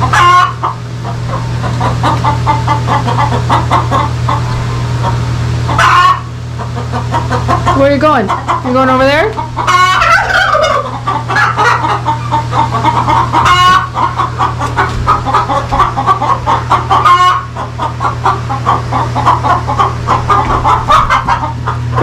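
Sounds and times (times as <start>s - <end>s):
chickens clucking: 0.0s - 22.0s
hen squawks: 9.4s - 22.0s.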